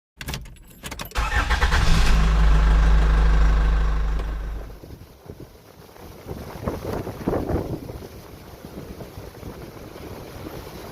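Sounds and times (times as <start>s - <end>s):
dump truck engine running: 2.1s - 4.8s.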